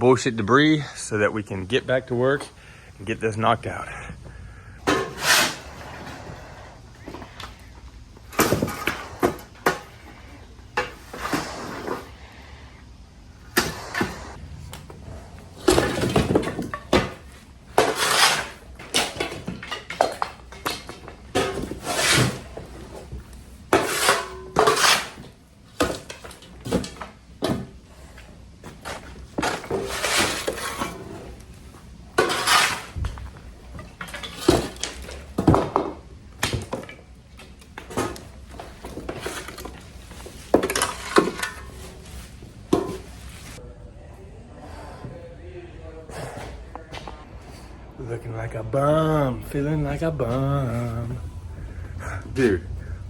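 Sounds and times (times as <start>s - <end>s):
debris scraping and clattering: 4.8s - 12.2s, 13.6s - 43.6s.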